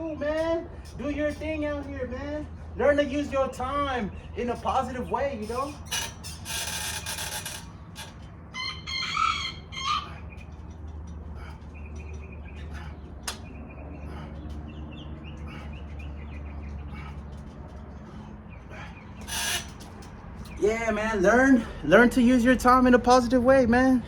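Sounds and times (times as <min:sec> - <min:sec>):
steady low hum: 0:00.0 - 0:24.0
rooster crowing: 0:08.5 - 0:10.2.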